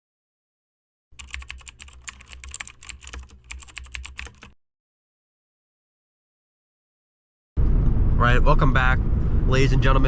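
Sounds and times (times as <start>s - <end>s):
rapid irregular clicking: 1.2s - 4.6s.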